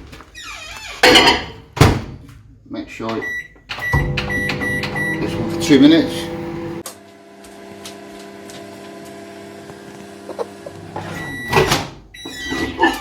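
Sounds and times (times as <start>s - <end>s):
microwave oven humming: 3.7s - 12.6s.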